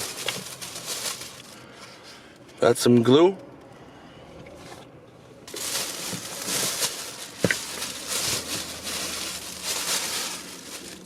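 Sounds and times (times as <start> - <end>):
packaging crinkling: 0.0 - 1.6, 5.5 - 11.0.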